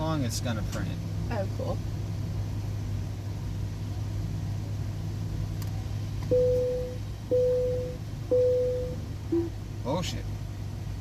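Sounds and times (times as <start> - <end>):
car engine idling: 0.0 - 11.0
card reader beeps: 6.3 - 9.5.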